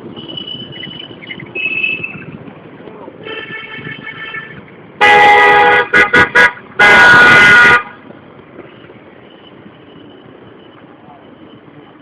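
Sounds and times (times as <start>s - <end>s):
street traffic noise: 0.0s - 12.0s
vehicle horn honking: 3.2s - 8.0s.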